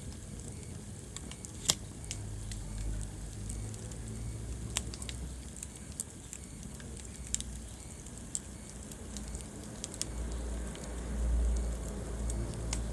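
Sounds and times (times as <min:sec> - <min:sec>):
wood fire crackling: 0:00.0 - 0:12.9
low steady rumble: 0:07.6 - 0:12.9.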